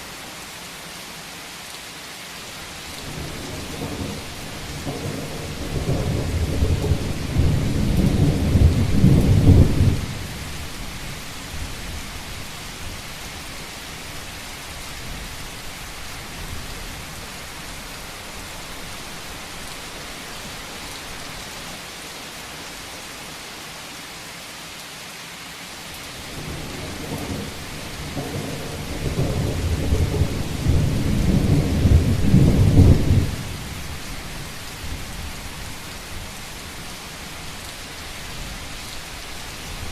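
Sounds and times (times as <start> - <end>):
steady rain on a rooftop: 0.0 - 39.9.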